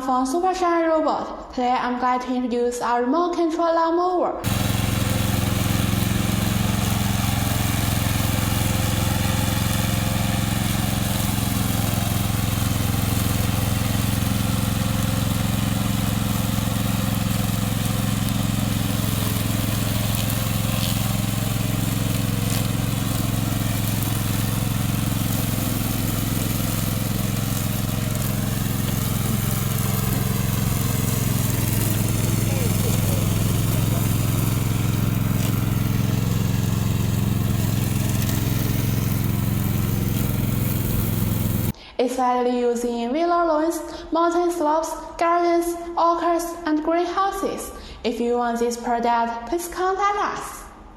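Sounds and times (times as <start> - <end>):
lawn mower engine running: 4.4 - 41.8.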